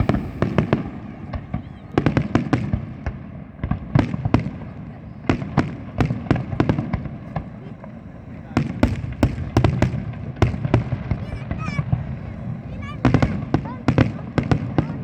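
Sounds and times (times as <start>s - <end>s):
low continuous rumble: 0.0s - 3.6s
fireworks bangs and crackles: 0.0s - 15.0s.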